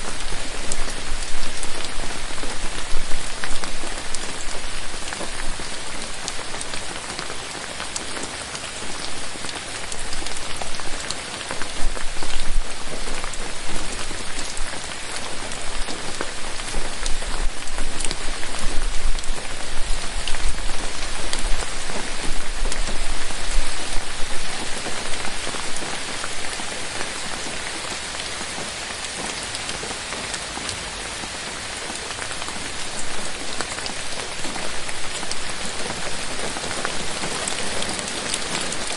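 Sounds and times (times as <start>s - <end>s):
rain on foliage: 0.0s - 38.9s.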